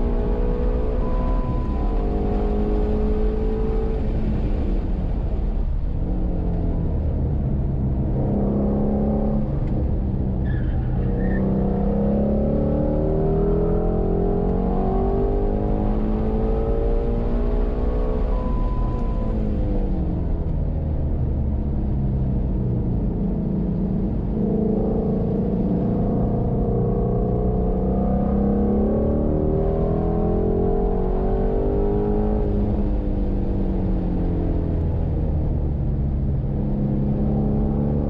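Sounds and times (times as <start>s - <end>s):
car engine revving: 7.5s - 20.0s
high beep: 18.3s - 19.4s.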